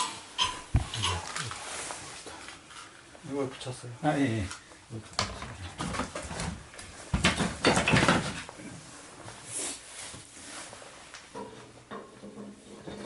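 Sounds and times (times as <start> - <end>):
soft hiss: 0.0 - 5.2, 8.5 - 11.4
knocks and clatter: 5.2 - 8.5.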